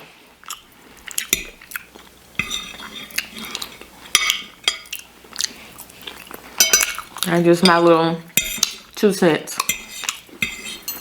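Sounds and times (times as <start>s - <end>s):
utensil clinking and scraping dish: 2.4s - 4.9s, 6.6s - 11.0s.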